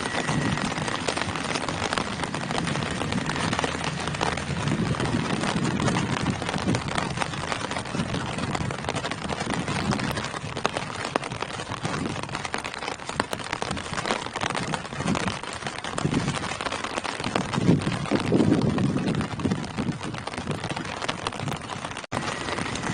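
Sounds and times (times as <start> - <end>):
low rumbling swells: 0.0 - 10.7
rain falling on foliage: 0.0 - 22.9.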